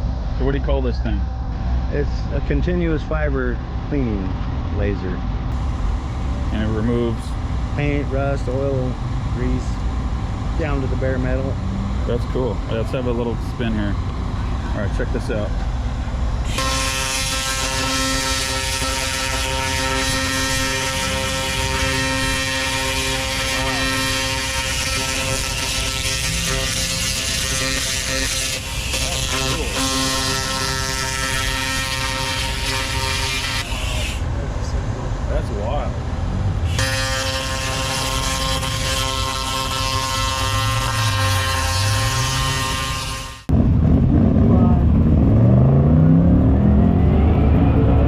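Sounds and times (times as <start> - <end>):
machine humming: 0.0 - 48.0
laser cleaner buzzing with hiss: 16.5 - 34.2.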